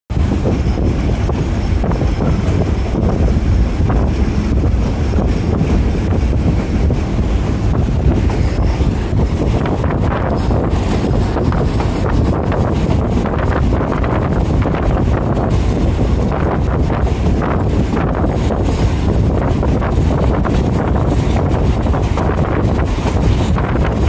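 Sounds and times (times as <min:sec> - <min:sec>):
train rumbling: 0:00.1 - 0:24.0
wind buffeting microphone: 0:00.1 - 0:24.0.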